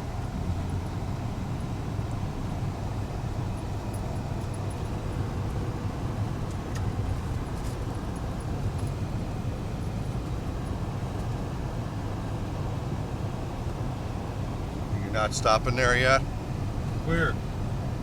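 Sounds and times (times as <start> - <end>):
vehicle engine and tyres rumbling: 0.0 - 18.0.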